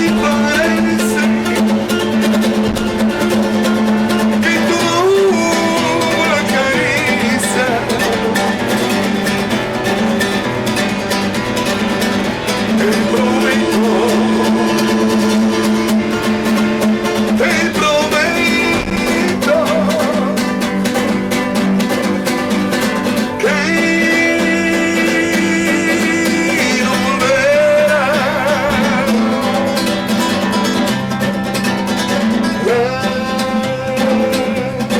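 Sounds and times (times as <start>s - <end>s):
man singing: 0.0s - 10.1s, 12.5s - 22.0s, 22.8s - 30.9s, 32.2s - 34.9s
acoustic guitar: 0.0s - 34.9s.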